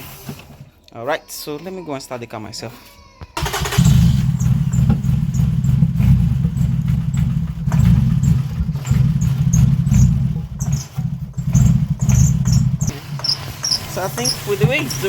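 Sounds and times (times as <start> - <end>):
car engine misfiring: 3.4 - 15.0.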